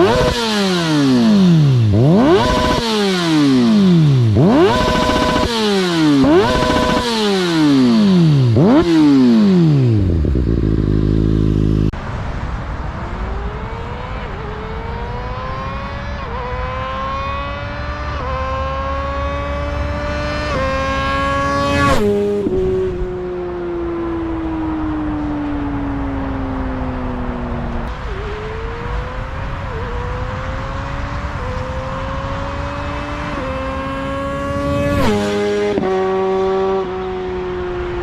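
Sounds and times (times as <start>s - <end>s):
motorcycle engine revving: 0.0s - 12.0s, 13.2s - 25.3s, 26.4s - 38.0s.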